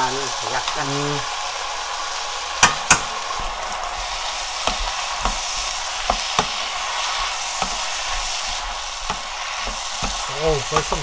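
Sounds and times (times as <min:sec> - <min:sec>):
food sizzling in a frying pan: 0:00.0 - 0:11.0
metal spoon tapping a pan: 0:02.6 - 0:03.3, 0:06.0 - 0:06.6, 0:09.0 - 0:11.0
spatula knocking against a pan: 0:09.0 - 0:10.2.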